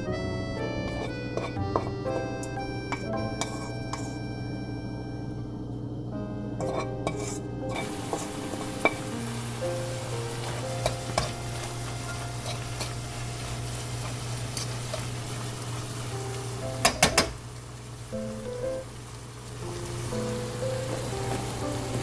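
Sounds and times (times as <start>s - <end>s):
soft background music: 0.0s - 15.1s, 15.9s - 17.4s, 18.1s - 22.0s
food sizzling in a frying pan: 6.6s - 22.0s.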